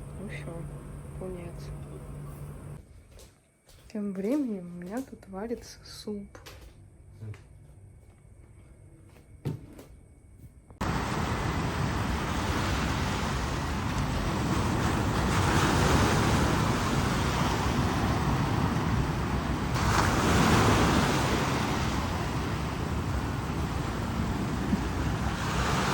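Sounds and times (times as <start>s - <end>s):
surf washing in: 10.8s - 25.9s
wind on microphone: 10.8s - 25.9s.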